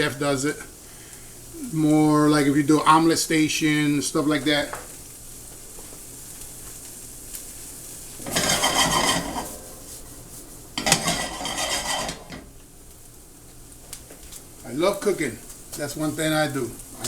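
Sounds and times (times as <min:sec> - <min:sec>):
vegetables sizzling: 0:00.0 - 0:17.0
utensil scraping a frying pan: 0:07.2 - 0:12.6.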